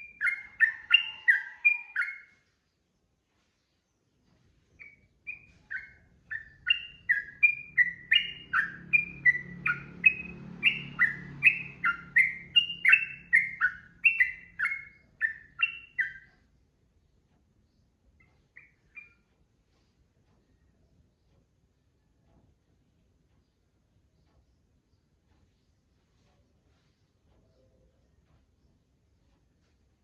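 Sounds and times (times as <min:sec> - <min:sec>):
bird singing whistled notes: 0:00.0 - 0:02.4, 0:04.8 - 0:16.4, 0:18.3 - 0:19.3.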